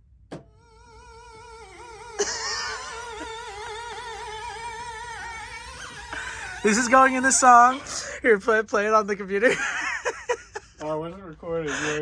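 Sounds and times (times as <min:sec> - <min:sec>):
wobbling synthesizer note: 0:00.4 - 0:07.8.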